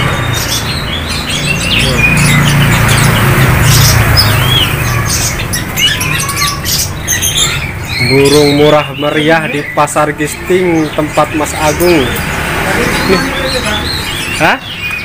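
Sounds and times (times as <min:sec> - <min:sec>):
songbirds chirping and whistling: 0:00.0 - 0:15.0.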